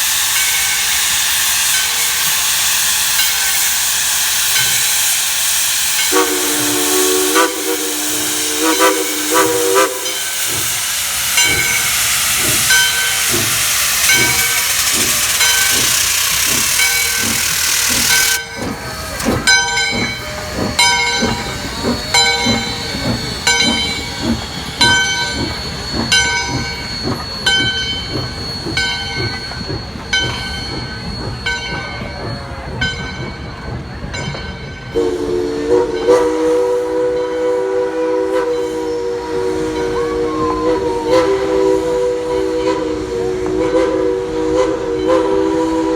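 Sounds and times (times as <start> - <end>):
multi-tone steam whistle: 0.0 - 25.6, 34.9 - 45.9
loud hissing steam: 0.0 - 29.7, 34.9 - 45.9
locomotive exhaust chuffs: 0.0 - 32.7.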